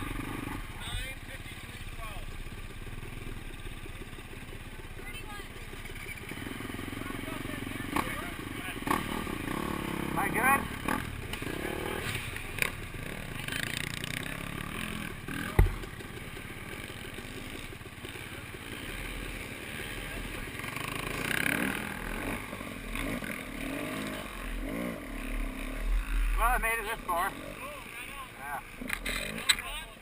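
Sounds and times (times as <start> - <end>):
off-road motorcycle engine running: 0.0 - 30.0
sharp knock: 15.5 - 15.9.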